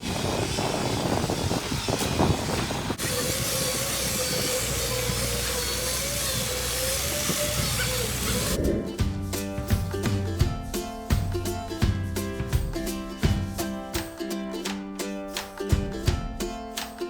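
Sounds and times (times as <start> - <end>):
heavy machinery humming and whining: 0.0 - 9.0
music: 7.7 - 17.0.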